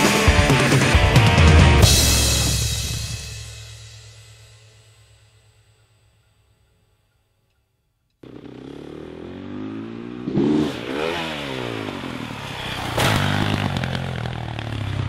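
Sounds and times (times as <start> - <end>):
music: 0.0 - 7.8
motorbike engine revving: 8.2 - 15.0.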